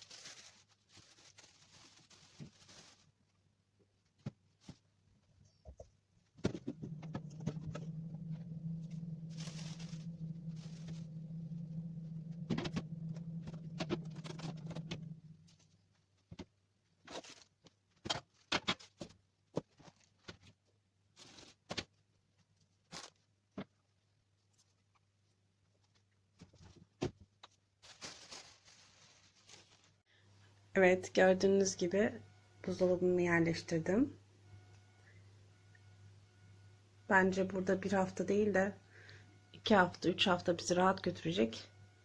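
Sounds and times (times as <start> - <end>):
steady low hum: 5.4 - 16.0, 30.1 - 42.0.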